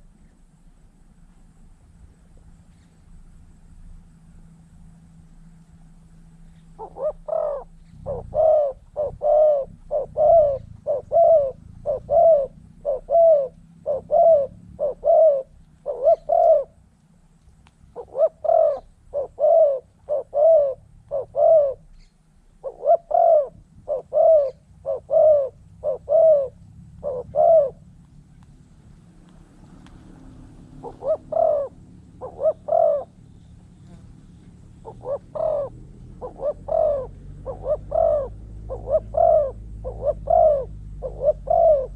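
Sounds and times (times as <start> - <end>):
dove cooing: 6.5 - 16.9, 17.8 - 28.4, 29.8 - 41.9.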